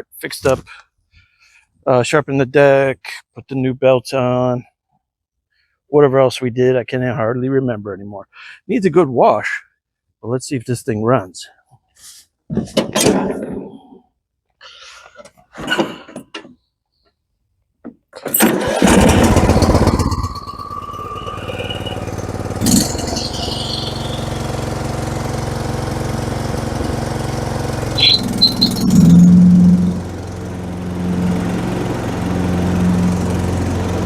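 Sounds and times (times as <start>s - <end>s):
lawn tractor engine running: 18.2s - 34.0s.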